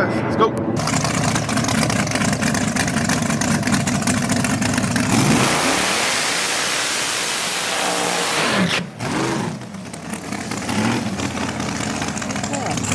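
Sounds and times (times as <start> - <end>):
truck engine revving and launching: 0.8 - 12.9.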